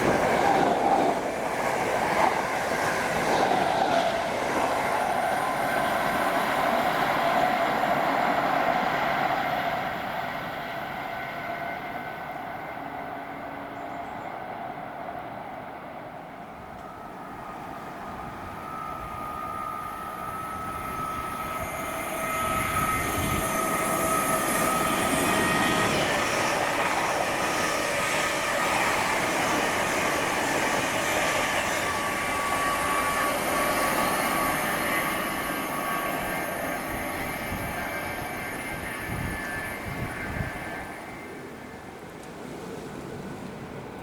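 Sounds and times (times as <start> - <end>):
train rushing past: 0.0 - 44.0
thin whine: 16.7 - 41.8.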